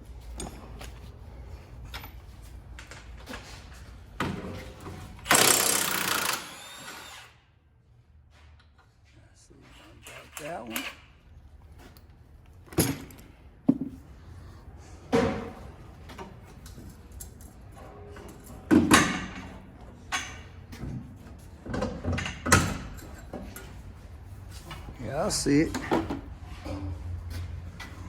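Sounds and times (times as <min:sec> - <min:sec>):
metal clanks of tools: 0:21.7 - 0:23.8.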